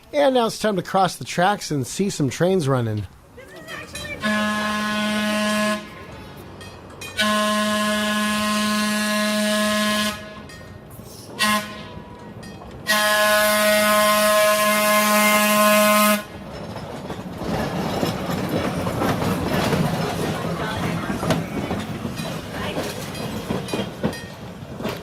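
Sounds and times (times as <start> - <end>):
rumble of approaching train: 2.2 - 25.0
locomotive air horn blasts: 4.2 - 6.2, 7.2 - 10.5, 11.4 - 12.2, 12.8 - 16.3.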